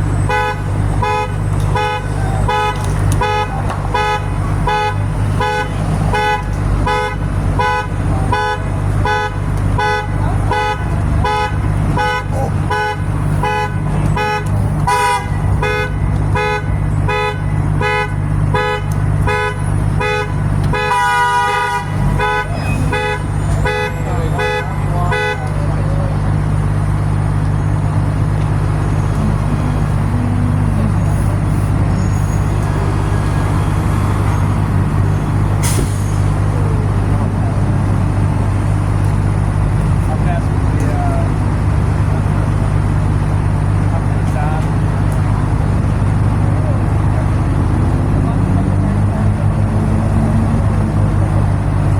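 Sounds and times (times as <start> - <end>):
truck engine droning: 0.0 - 51.9
vehicle horn honking: 0.2 - 25.9, 28.8 - 33.5.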